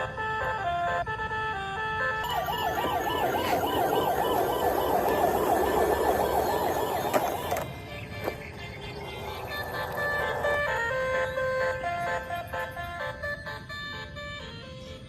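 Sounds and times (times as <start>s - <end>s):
toy siren wailing: 0.0s - 14.8s
electronic beeping melody: 2.2s - 13.8s.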